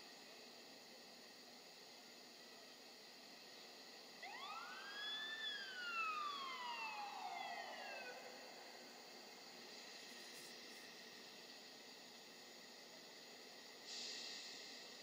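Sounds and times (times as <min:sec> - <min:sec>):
steady hiss: 0:00.0 - 0:15.0
fire engine siren wail: 0:04.2 - 0:09.0.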